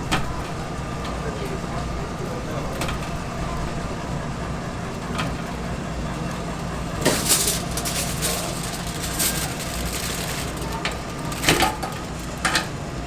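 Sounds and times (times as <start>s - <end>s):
low machine hum: 0.0s - 13.0s
clattering noise: 7.0s - 12.8s.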